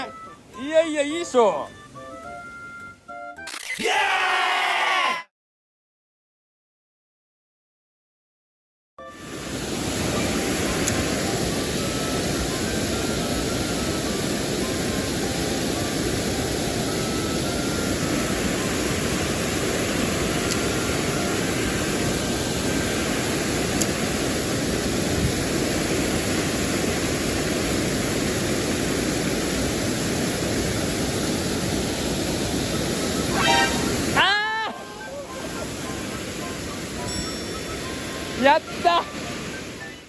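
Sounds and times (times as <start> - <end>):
stream water rushing: 9.2 - 40.0.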